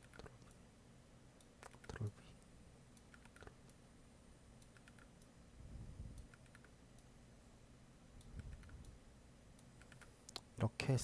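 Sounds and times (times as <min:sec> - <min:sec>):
computer keyboard keystrokes: 0:00.0 - 0:00.6, 0:01.6 - 0:02.1, 0:03.0 - 0:03.6, 0:04.6 - 0:05.1, 0:06.2 - 0:06.8, 0:08.2 - 0:08.9, 0:09.8 - 0:10.5.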